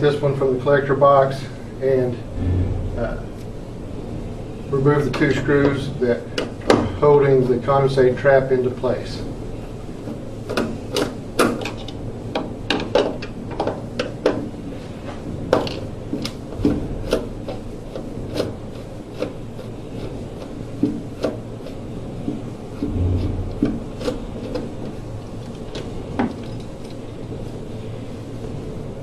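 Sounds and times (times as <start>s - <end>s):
short low hum: 2.2s - 4.6s, 22.8s - 24.3s.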